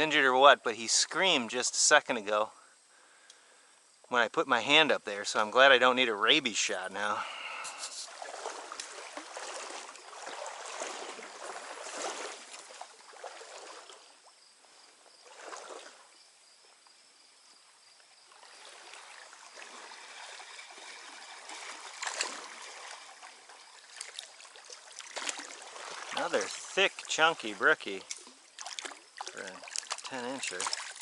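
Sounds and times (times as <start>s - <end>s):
stream water rushing: 7.0s - 14.1s, 18.3s - 31.0s.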